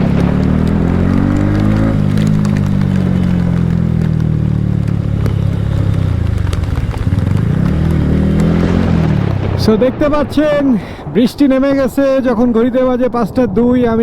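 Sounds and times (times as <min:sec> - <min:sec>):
motorcycle engine running: 0:00.0 - 0:10.0
rain ticking on camera: 0:00.0 - 0:12.8.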